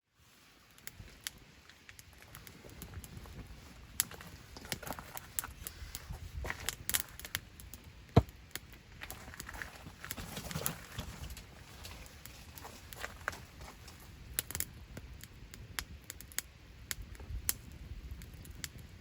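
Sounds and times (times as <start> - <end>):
campfire crackling and popping: 0.3 - 19.0.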